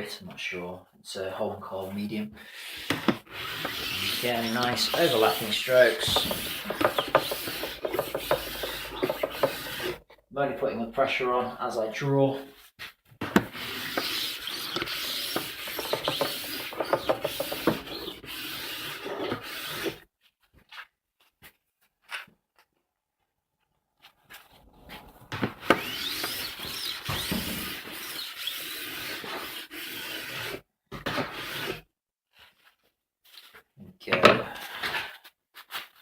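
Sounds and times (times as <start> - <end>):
file rasping on steel edge: 2.7 - 10.0, 13.4 - 20.0, 25.6 - 30.6.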